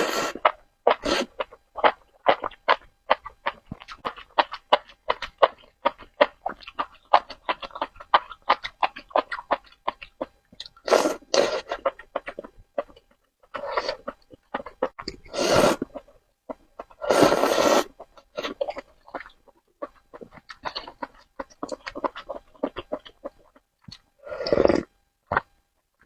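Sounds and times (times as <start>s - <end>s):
wet chewing and lip smacks: 0.4s - 10.9s, 18.0s - 24.1s
noodle slurp: 15.3s - 16.0s, 17.0s - 18.6s.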